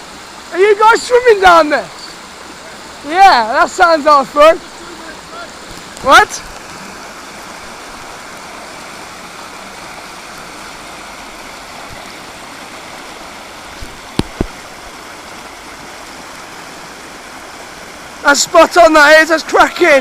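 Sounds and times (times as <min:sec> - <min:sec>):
river water rushing: 0:00.0 - 0:20.0
sharp knocks: 0:13.8 - 0:14.6.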